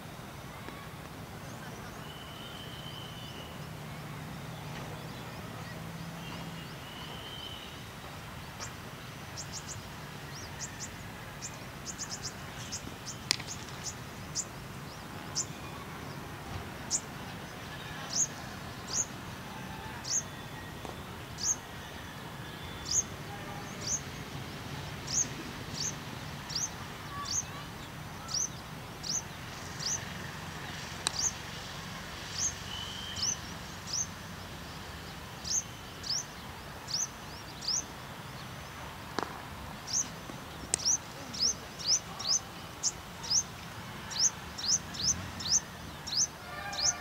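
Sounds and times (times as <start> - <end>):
open-air ambience: 0.0 - 47.0
small bird chirping: 31.0 - 31.4, 39.9 - 43.5.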